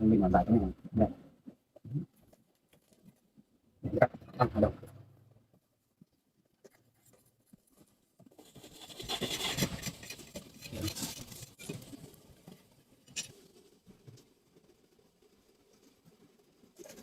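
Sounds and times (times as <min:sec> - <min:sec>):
dry rustling and scratching: 0:06.4 - 0:17.0.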